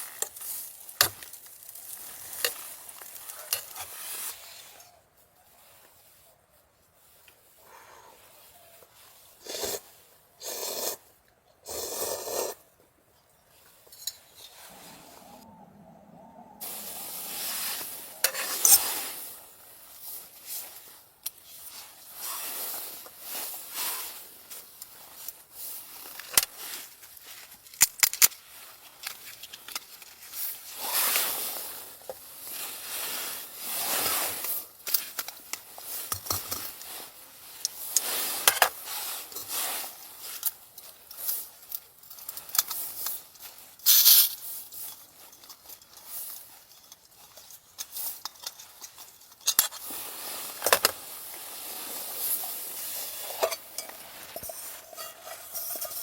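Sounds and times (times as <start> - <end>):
rustling: 0.0 - 10.2, 13.5 - 56.0
scraping: 44.8 - 56.0.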